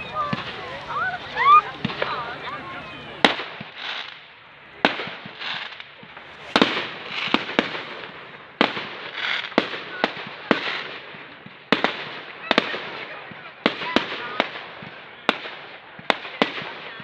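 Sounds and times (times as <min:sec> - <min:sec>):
crackling hiss: 0:00.0 - 0:17.0
firework shells bursting: 0:03.2 - 0:12.8.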